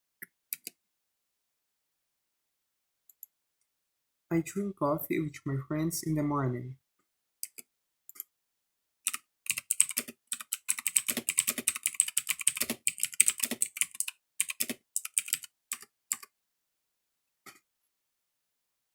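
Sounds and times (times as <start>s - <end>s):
mechanical keyboard typing: 9.1s - 16.3s.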